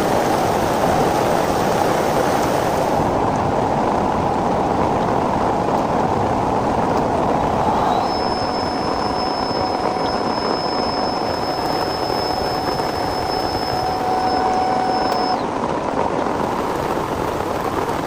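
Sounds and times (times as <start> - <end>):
thin high steady tone: 7.1 - 15.5.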